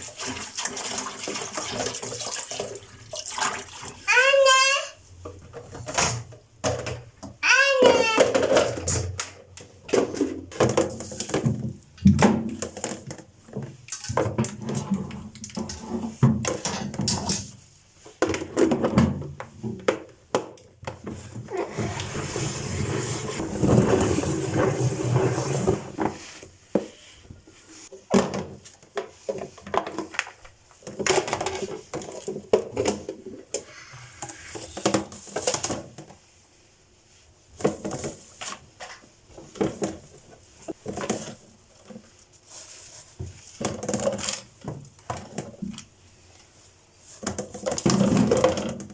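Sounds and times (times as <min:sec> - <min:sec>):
clicks and knocks of containers: 0:05.2 - 0:21.5, 0:27.9 - 0:36.2, 0:37.6 - 0:45.9, 0:47.0 - 0:48.9.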